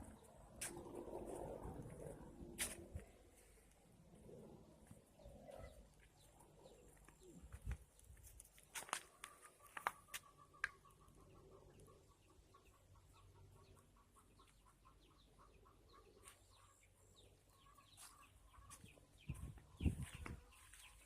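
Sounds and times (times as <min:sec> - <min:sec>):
chickens clucking and chirping: 0:09.0 - 0:21.0.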